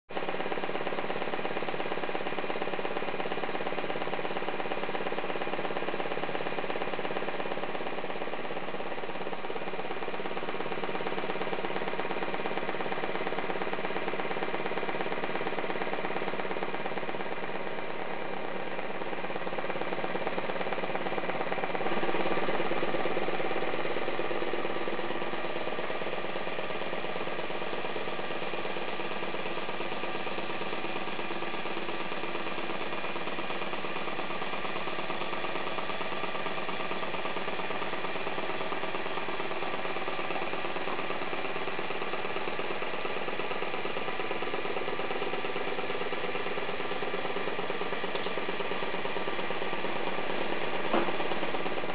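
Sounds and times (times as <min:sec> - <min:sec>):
small engine mechanism rattling: 0:00.1 - 0:51.9.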